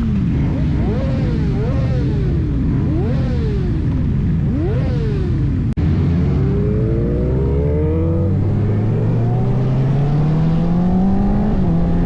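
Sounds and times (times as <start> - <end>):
deeper motorbike engine rising: 4.5 - 12.0.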